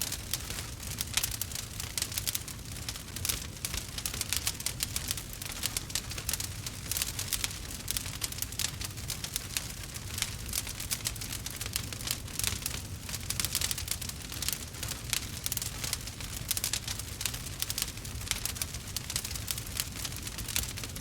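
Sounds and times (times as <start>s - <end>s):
burning wood crackling and popping: 0.0s - 21.0s
low rumble of fire: 0.0s - 21.0s.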